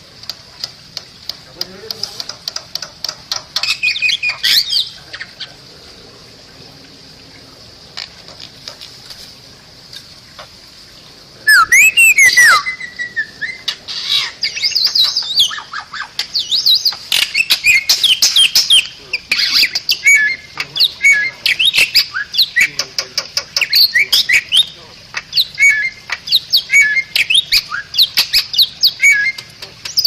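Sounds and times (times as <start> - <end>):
bird clicks and chirps: 0.2 - 5.3, 16.2 - 30.0
bird whistles and squawks: 11.5 - 22.8, 25.4 - 30.0.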